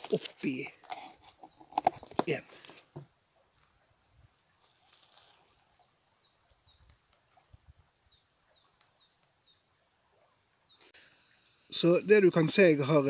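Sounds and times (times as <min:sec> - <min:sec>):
plastic bags rustling: 0:04.6 - 0:05.7.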